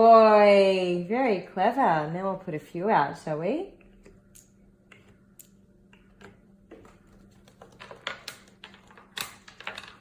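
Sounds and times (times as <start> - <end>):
faint steady hum: 0.0 - 10.0
small objects clicking on a table: 7.6 - 10.0.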